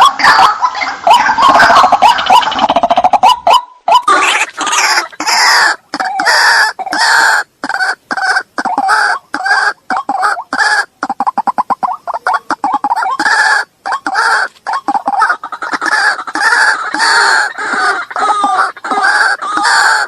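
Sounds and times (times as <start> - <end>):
harsh bird calls: 0.0 - 20.0.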